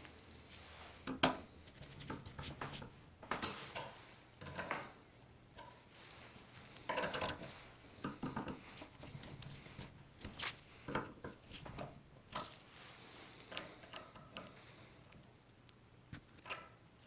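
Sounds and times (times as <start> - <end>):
small parts clicking and knocking: 6.8 - 9.9.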